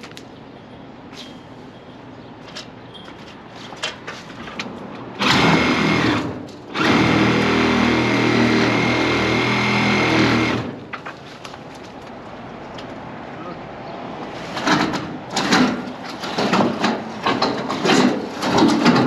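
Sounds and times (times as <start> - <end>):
electric power tool running: 5.2 - 10.8.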